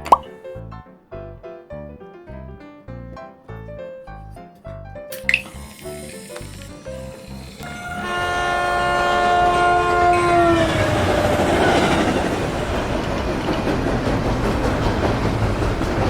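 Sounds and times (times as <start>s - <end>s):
train rumble and clatter: 7.4s - 16.0s
train horn chord: 7.5s - 12.4s.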